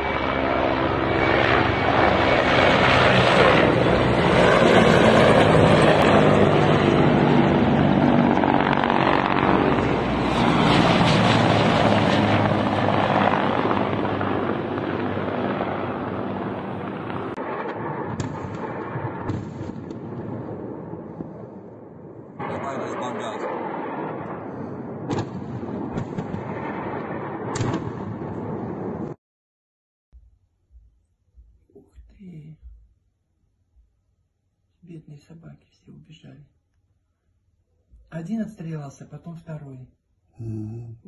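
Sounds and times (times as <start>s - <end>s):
helicopter rotor and turbine noise: 0.0s - 29.2s.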